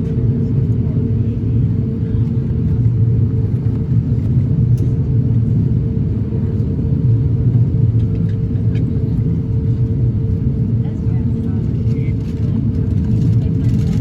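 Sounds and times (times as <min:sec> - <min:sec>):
aircraft cabin rumble and hum: 0:00.0 - 0:14.0.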